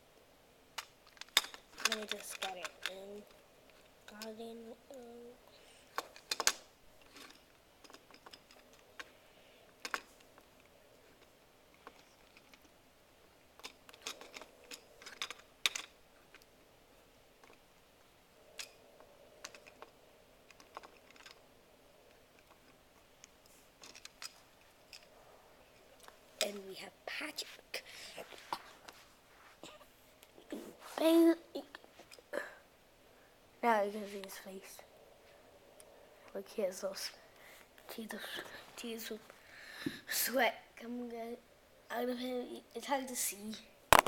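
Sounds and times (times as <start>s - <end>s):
plastic toy parts clicking: 0.8s - 4.3s, 5.9s - 9.1s, 9.8s - 10.2s, 13.6s - 16.5s, 19.4s - 19.9s, 20.5s - 21.4s, 23.2s - 25.1s.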